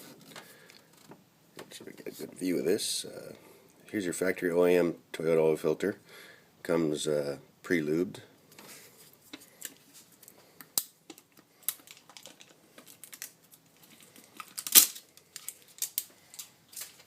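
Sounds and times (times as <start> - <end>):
packaging crinkling: 11.1 - 17.0.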